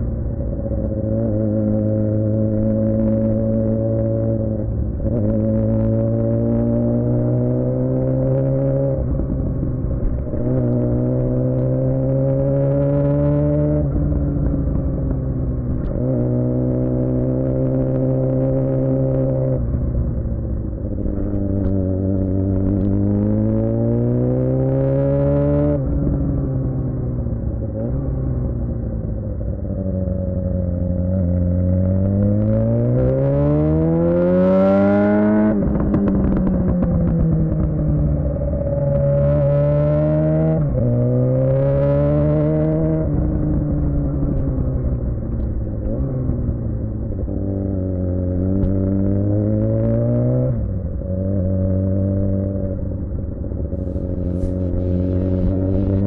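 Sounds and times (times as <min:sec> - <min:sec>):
motorcycle engine revving: 0:00.0 - 0:56.0
exhaust crackles: 0:52.7 - 0:56.0.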